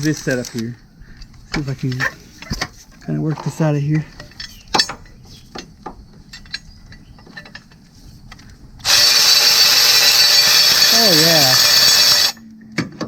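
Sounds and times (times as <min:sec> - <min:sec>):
cordless power tool running: 0:08.8 - 0:12.4.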